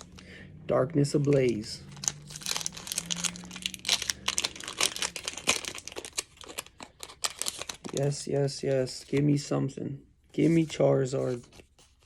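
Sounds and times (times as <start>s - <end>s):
foil wrapper crinkling and tearing: 1.3s - 8.2s.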